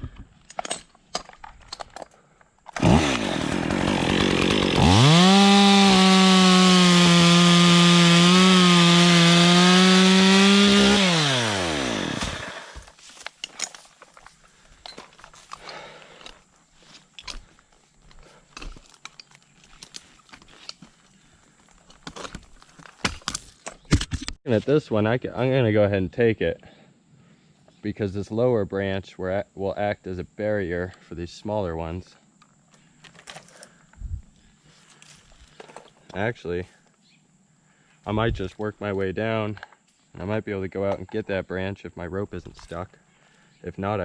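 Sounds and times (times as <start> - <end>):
chainsaw cutting through branch: 2.8 - 12.9.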